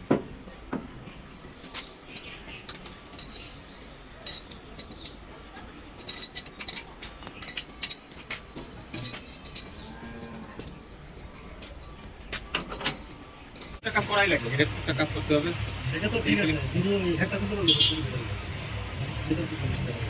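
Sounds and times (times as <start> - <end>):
metal tools clinking: 2.1 - 3.6, 4.2 - 5.2, 5.9 - 10.0.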